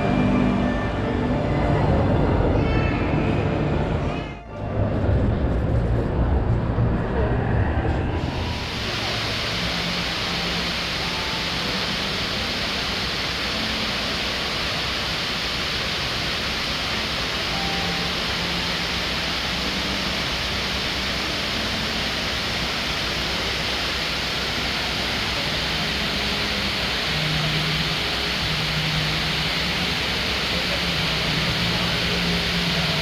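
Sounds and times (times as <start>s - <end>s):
steady rushing hiss: 8.2s - 33.0s.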